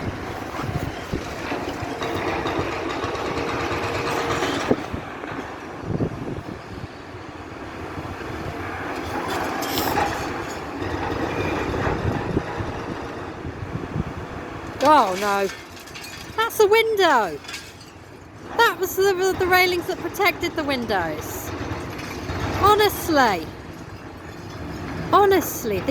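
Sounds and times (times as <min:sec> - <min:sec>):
excavator running: 0:18.5 - 0:25.9.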